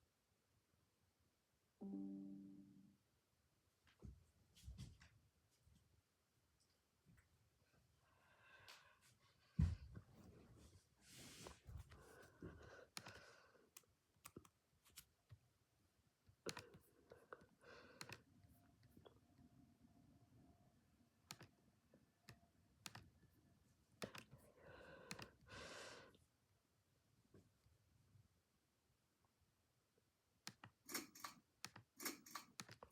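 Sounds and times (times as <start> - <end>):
faint irregular clicks: 11.8 - 15.4, 16.3 - 19.5, 21.3 - 21.5, 24.0 - 24.4, 25.0 - 25.5, 30.4 - 32.9.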